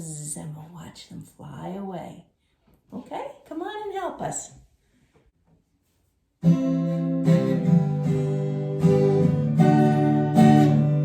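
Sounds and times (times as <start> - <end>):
acoustic guitar strumming chords: 6.4 - 11.0.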